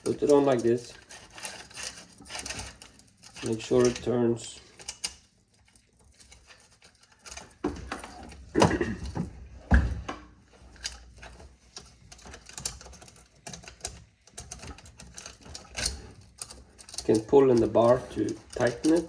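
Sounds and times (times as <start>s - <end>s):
chainsaw chain clicking and rattling: 0.0s - 7.6s, 12.1s - 19.0s.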